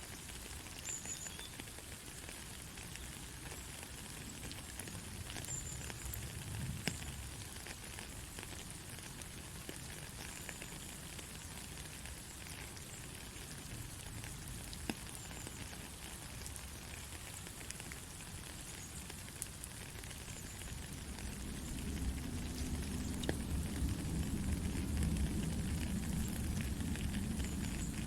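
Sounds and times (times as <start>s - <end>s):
soft rain falling: 0.0s - 28.0s
low rumble: 21.0s - 28.0s.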